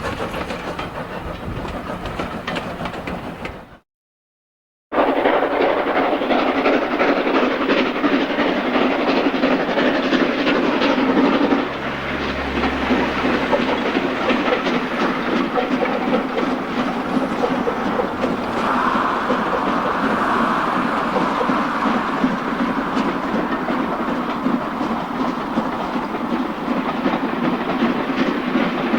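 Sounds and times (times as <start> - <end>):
train wheels clattering over track: 0.0 - 3.8, 5.0 - 28.9
low hum: 12.9 - 27.1.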